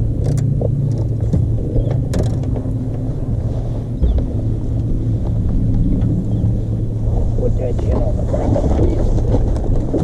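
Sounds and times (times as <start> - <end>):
boat motor humming: 0.0 - 10.0.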